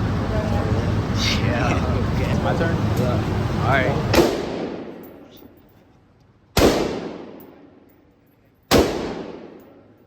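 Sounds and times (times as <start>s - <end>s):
rifle shots echoing indoors: 4.2s - 5.0s, 6.6s - 7.7s, 8.7s - 9.8s.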